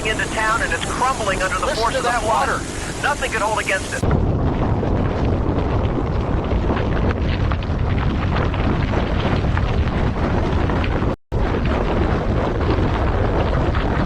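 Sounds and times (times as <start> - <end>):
floodwater rushing: 0.0 - 4.0.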